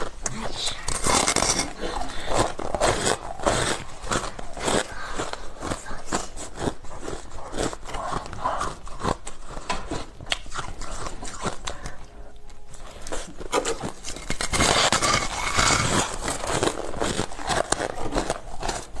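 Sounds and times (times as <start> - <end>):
ice being chewed: 0.0 - 19.0.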